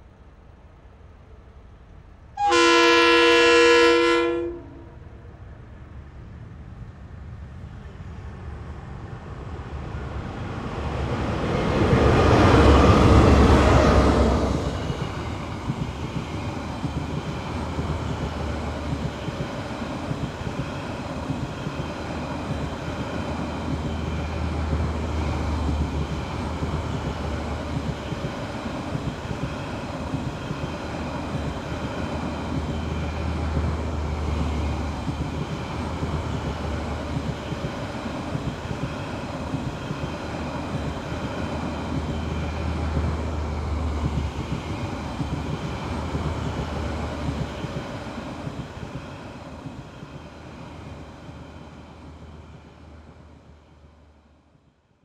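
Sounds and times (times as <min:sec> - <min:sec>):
train rumbling past: 0:01.2 - 0:54.4
locomotive horn chord: 0:02.4 - 0:04.8.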